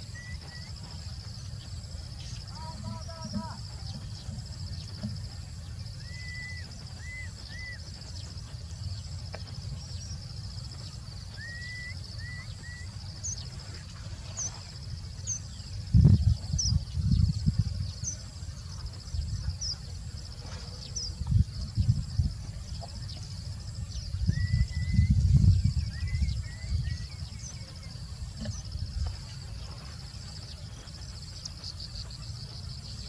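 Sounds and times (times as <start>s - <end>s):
birds whistling: 0.0s - 1.0s, 1.6s - 14.6s, 22.8s - 28.8s
insect trill: 0.0s - 33.0s.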